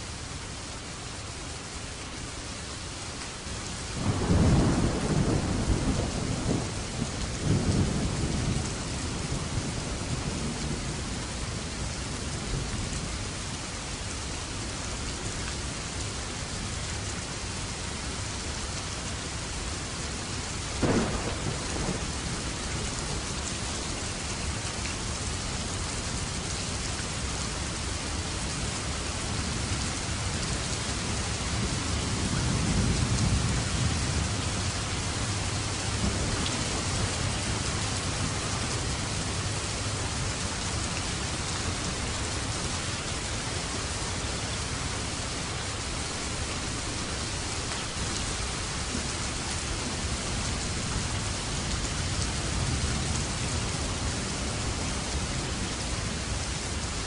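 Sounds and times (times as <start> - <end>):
heavy rain: 0.0 - 57.0
thunder rumbling: 4.0 - 10.9, 20.8 - 23.6
thunder crack: 20.8 - 22.0.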